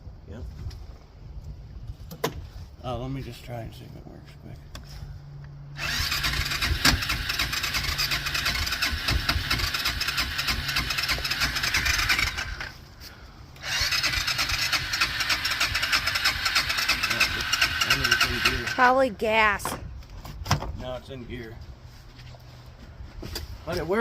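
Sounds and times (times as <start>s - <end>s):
electric starter cranking engine: 5.8s - 12.8s, 13.6s - 18.9s.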